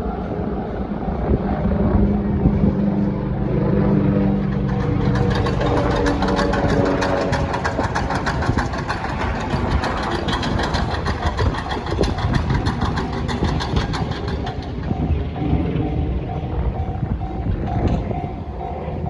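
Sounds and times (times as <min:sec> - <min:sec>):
train rumble: 0:00.0 - 0:19.0
clatter of sharp clicks: 0:04.4 - 0:15.6.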